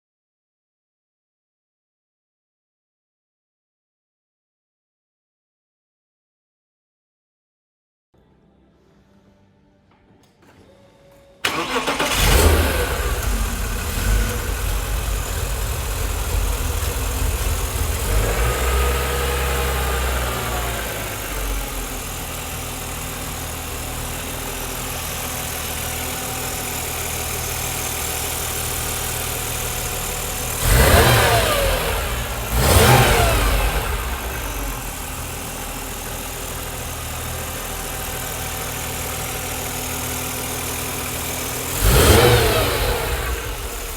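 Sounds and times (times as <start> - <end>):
car engine starting and idling: 11.4 - 43.9
engine revving: 11.5 - 43.9.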